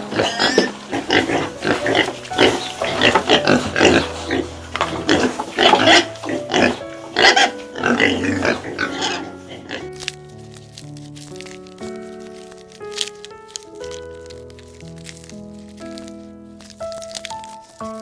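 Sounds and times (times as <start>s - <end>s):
pig grunting: 0.0s - 10.1s
background music: 0.0s - 18.0s.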